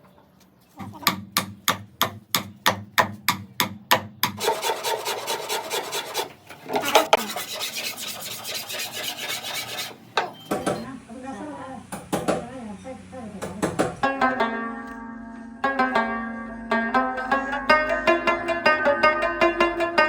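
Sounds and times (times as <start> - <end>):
rasp scraping wood: 4.4 - 10.0.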